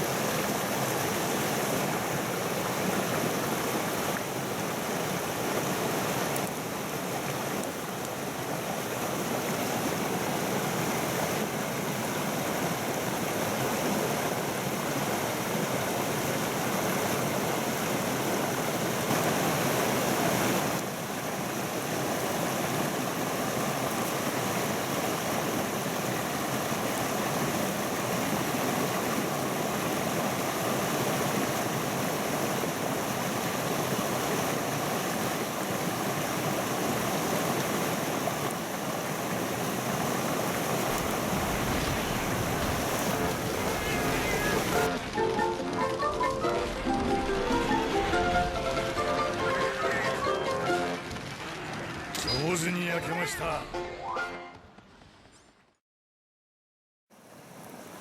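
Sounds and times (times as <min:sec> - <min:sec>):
mountain stream rushing: 0:00.0 - 0:54.4, 0:57.1 - 0:58.0.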